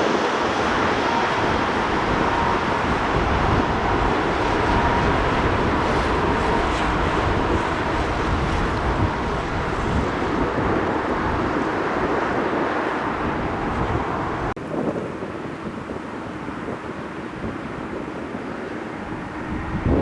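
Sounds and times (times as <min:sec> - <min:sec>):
jet airliner engines roaring: 0:00.0 - 0:20.0.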